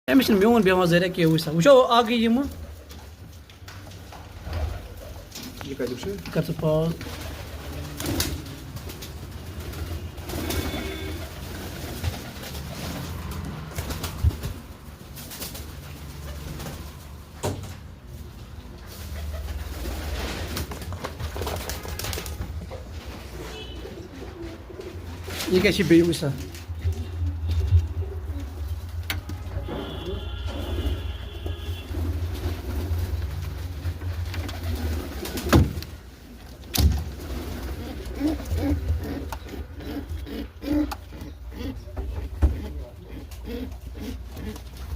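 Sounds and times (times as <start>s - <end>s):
pigeons cooing: 7.1s - 14.6s, 23.6s - 25.5s, 37.2s - 44.9s.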